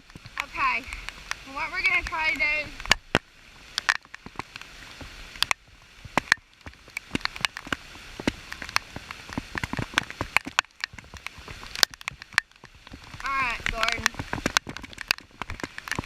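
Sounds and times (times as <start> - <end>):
rain patter: 0.0 - 16.0
sharp raindrop hits: 0.0 - 16.0.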